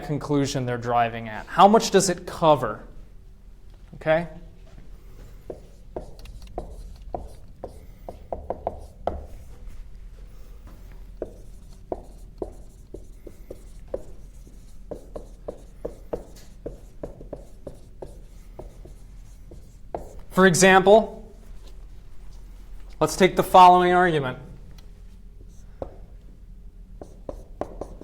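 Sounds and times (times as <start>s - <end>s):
handwriting taps and scratches: 5.4s - 9.6s, 10.9s - 20.3s, 25.7s - 26.0s, 27.0s - 28.0s.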